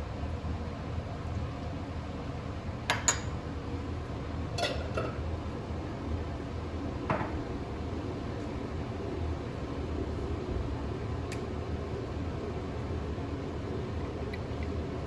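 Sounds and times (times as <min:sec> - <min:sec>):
dishes and cutlery clinking: 0:04.6 - 0:05.2.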